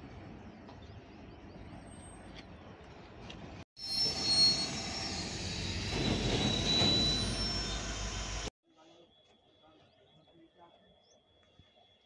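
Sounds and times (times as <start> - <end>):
train wagons rumbling: 2.8 - 8.5
high wheel squeal: 3.8 - 8.5.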